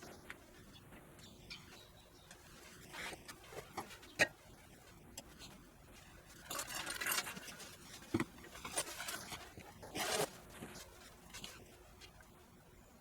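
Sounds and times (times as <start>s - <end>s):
rustling scrape: 4.8s - 12.2s.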